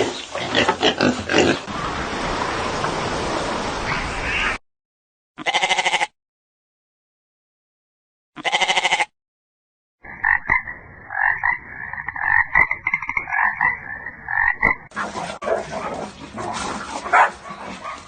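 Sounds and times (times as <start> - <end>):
frogs croaking: 10.0 - 14.9.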